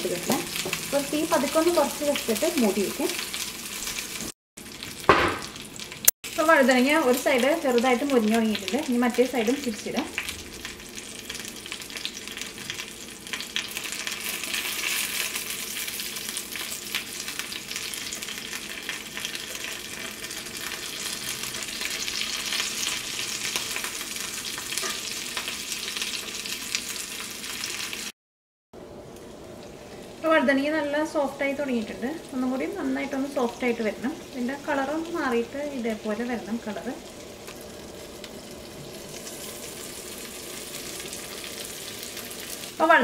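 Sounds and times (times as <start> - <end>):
vegetables sizzling in hot oil: 0.0 - 28.1, 28.8 - 43.0.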